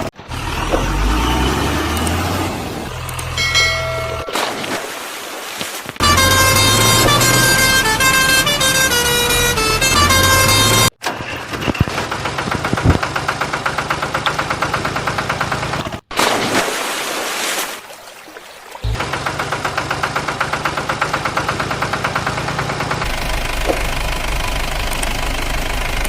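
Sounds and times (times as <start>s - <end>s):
tractor diesel engine chugging: 0.0s - 4.4s, 6.0s - 16.0s, 18.8s - 26.0s
musical vehicle horn tune: 6.0s - 11.0s.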